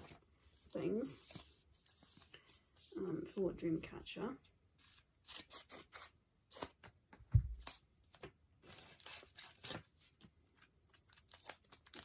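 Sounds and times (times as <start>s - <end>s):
packaging tearing and rustling: 8.6s - 9.9s, 10.9s - 12.0s.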